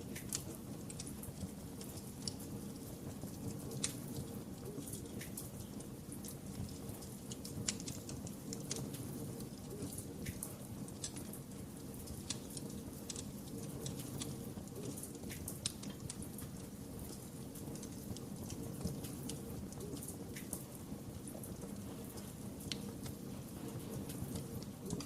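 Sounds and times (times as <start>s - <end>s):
low rumble of burning fire: 0.0s - 25.0s
wood fire crackling: 0.0s - 25.0s.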